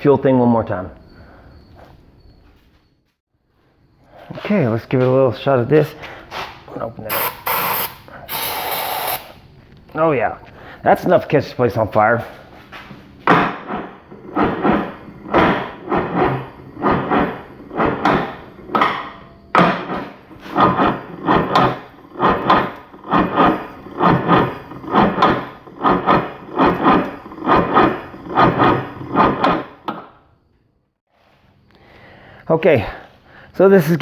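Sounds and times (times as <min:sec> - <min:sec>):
jet ski engine cranking: 0:14.0 - 0:30.0.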